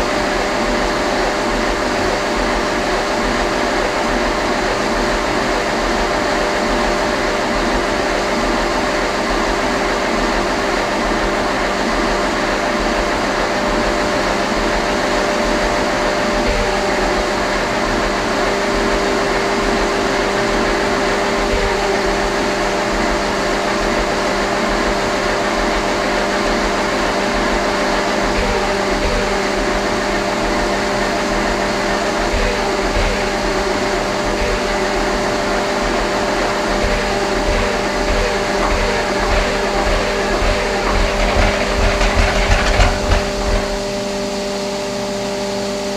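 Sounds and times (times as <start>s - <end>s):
diesel engine running: 15.8s - 44.2s.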